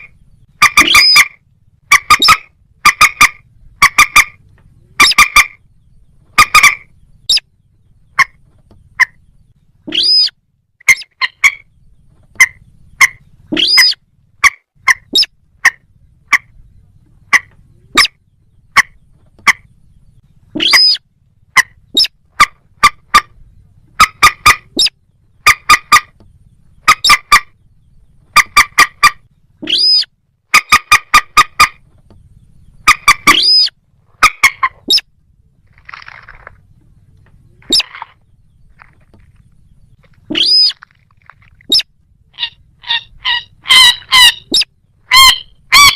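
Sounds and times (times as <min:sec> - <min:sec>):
swooping bird call: 0:00.0 - 0:05.6, 0:06.3 - 0:07.5, 0:09.8 - 0:11.7, 0:12.3 - 0:16.6, 0:20.5 - 0:26.2, 0:28.3 - 0:31.8, 0:32.8 - 0:35.1, 0:37.5 - 0:45.9
bird clucking calls: 0:00.0 - 0:45.9.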